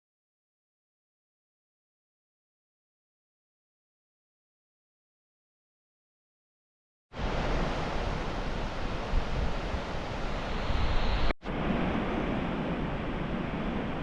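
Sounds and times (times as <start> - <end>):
steady rushing noise: 7.2 - 14.0.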